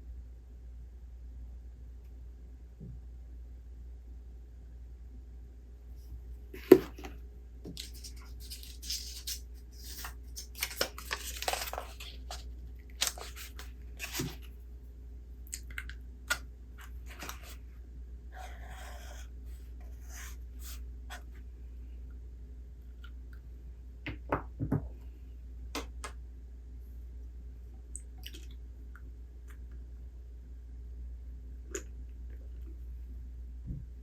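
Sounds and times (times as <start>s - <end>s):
faint low hum: 0.0s - 34.0s
paper rustling: 6.6s - 14.6s, 16.8s - 17.6s.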